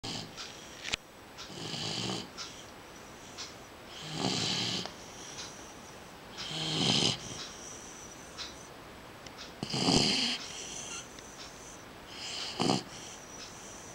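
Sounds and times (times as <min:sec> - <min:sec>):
dog snoring: 0:00.0 - 0:00.7, 0:01.5 - 0:02.6, 0:03.9 - 0:05.7, 0:06.4 - 0:08.7, 0:09.6 - 0:13.9.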